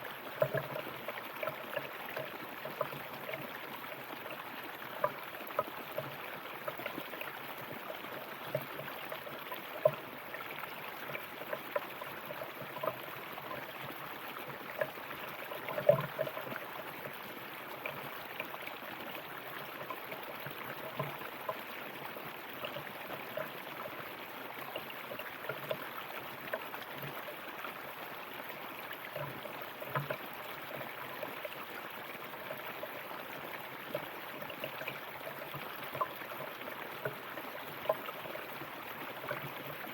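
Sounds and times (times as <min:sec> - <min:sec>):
river water flowing: 0:00.0 - 0:39.9
water splashing and gurgling: 0:00.0 - 0:39.9.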